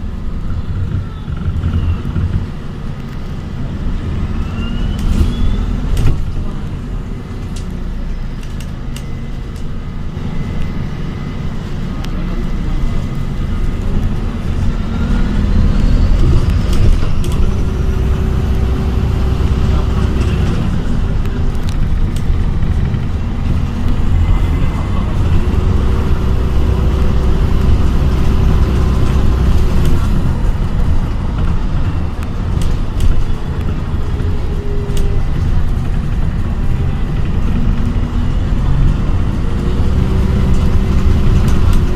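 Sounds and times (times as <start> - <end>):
bus drivetrain and road rumble: 0.0 - 41.9
rattles and clicks: 16.1 - 17.9.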